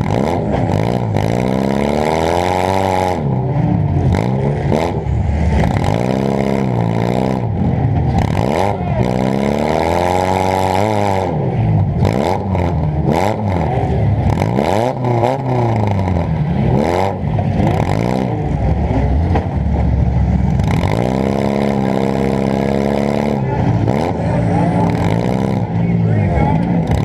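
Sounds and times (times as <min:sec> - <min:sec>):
car engine revving hard: 0:00.0 - 0:19.4, 0:20.5 - 0:27.0
knocks and clatter: 0:19.0 - 0:21.6.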